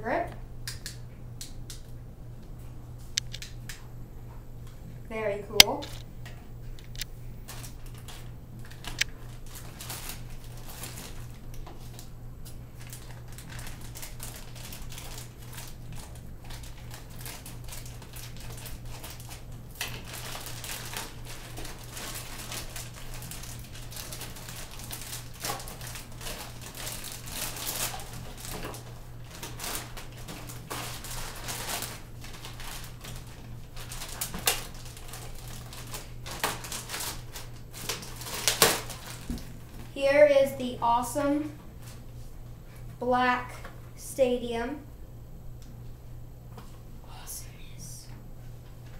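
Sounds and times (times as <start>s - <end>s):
steady low hum: 0.0s - 48.9s
packaging crinkling and rustling: 6.7s - 39.9s.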